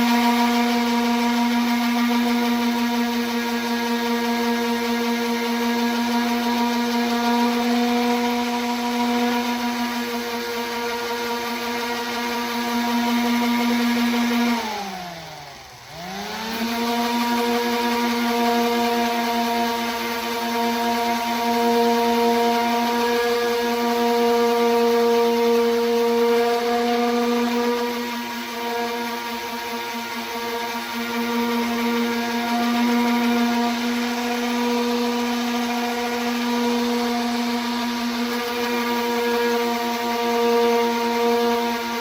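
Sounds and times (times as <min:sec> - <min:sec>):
orbital sander on metal: 0:00.0 - 0:42.0.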